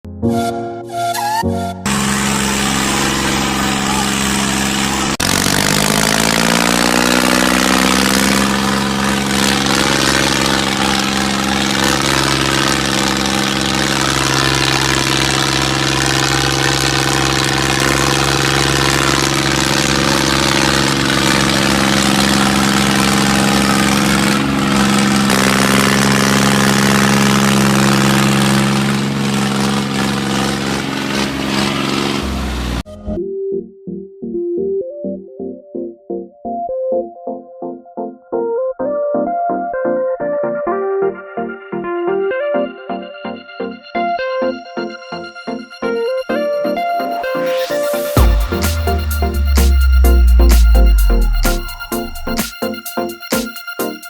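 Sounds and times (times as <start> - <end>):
engine starting and running: 1.8 - 33.2, 47.2 - 54.0.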